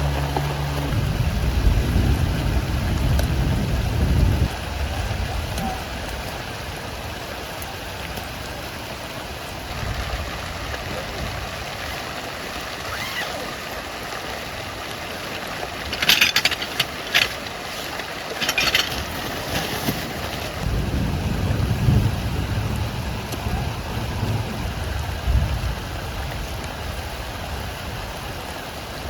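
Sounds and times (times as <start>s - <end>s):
rain falling: 0.0s - 29.0s
sharp clicking and rattling: 15.4s - 20.6s.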